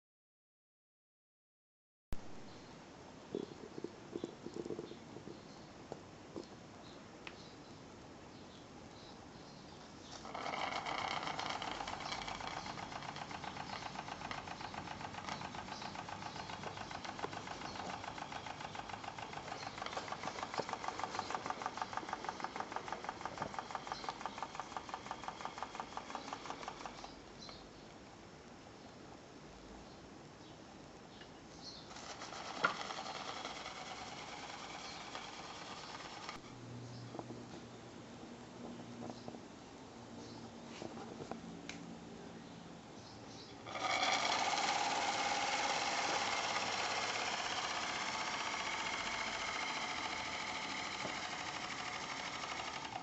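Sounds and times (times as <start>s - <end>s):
steam engine running: 10.6s - 27.0s, 31.9s - 36.4s, 43.6s - 53.0s.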